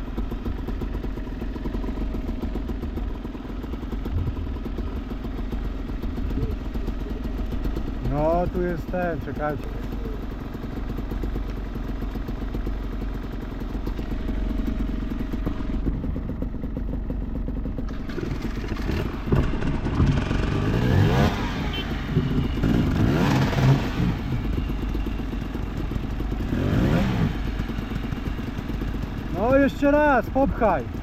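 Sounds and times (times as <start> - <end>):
dirt bike engine revving: 17.9 - 24.9, 26.4 - 28.3.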